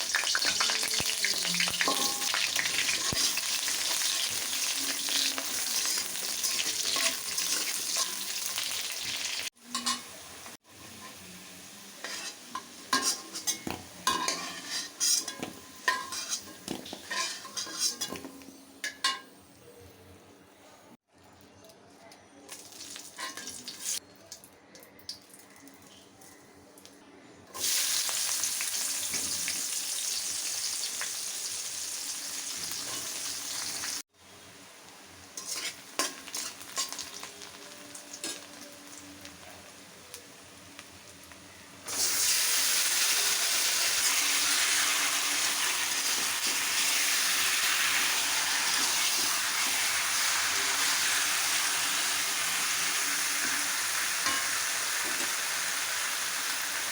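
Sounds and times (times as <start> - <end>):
food sizzling in hot oil: 0.0 - 18.3, 22.5 - 24.0, 27.6 - 56.9
spoon clinking against pan: 0.3 - 3.0, 17.1 - 19.3.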